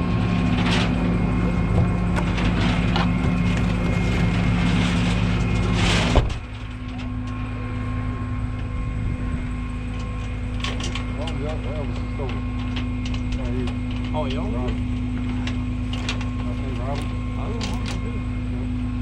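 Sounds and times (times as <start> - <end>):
truck engine running: 0.0 - 19.0
knocks and clatter: 0.3 - 7.4.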